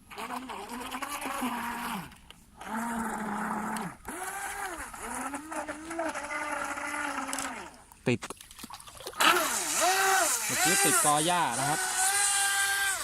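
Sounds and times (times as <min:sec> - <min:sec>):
electric motor whining: 0:09.2 - 0:13.0.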